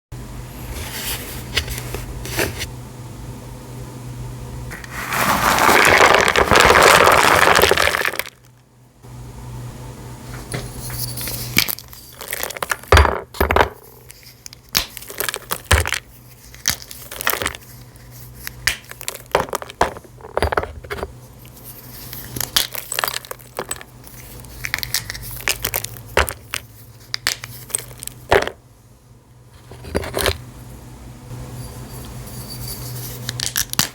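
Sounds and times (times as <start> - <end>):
brittle pieces crunching and snapping: 4.8 - 8.5, 11.6 - 12.9, 13.9 - 17.6, 18.4 - 19.8, 22.2 - 28.4.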